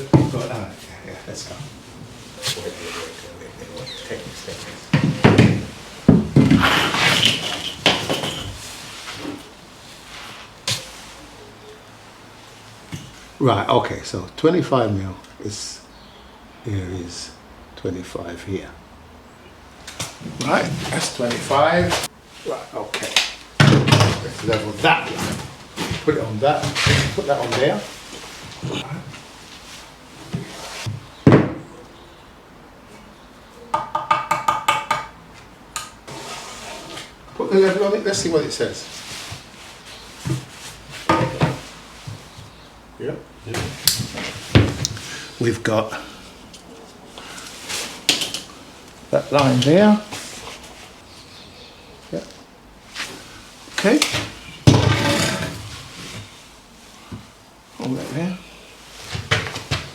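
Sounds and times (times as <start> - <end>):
rustling clatter: 1.6 - 11.1
tool knocking against wall: 33.7 - 35.2.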